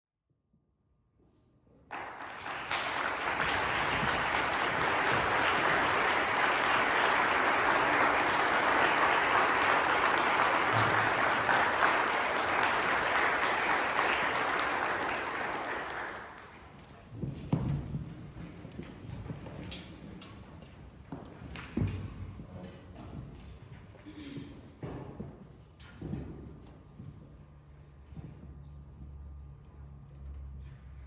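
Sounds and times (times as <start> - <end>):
audience applauding: 1.9 - 16.8.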